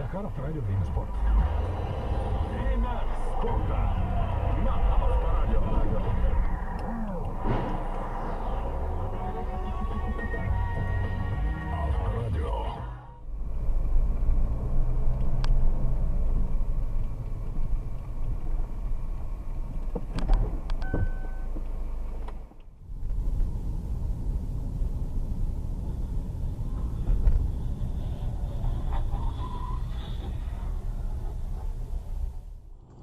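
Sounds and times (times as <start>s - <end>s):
car road and engine rumble: 0.0s - 33.0s
short beep: 20.8s - 21.5s.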